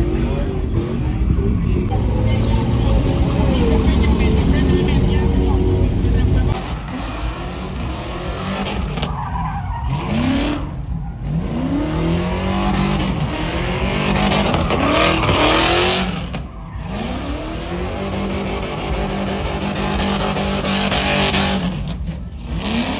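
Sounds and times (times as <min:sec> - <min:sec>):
truck engine revving: 0:01.8 - 0:09.2
tyres squealing: 0:01.9 - 0:06.6.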